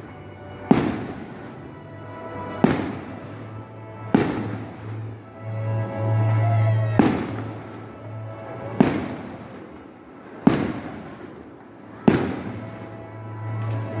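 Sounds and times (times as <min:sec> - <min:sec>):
firework bangs with echo: 0:00.7 - 0:01.6, 0:02.5 - 0:03.3, 0:04.1 - 0:05.0, 0:07.0 - 0:07.8, 0:08.8 - 0:14.0.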